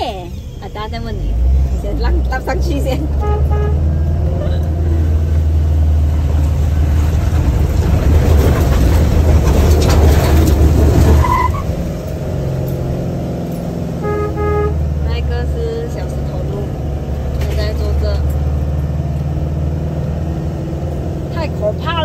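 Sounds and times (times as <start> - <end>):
car engine straining: 0.0 - 22.0
tyres spinning on gravel: 6.2 - 12.1.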